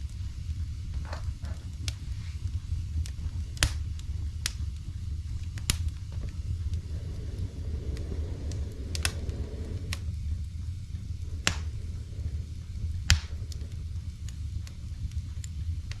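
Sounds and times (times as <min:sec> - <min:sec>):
fire flames rumbling: 0:00.0 - 0:16.0
firewood crackling and popping: 0:00.0 - 0:16.0.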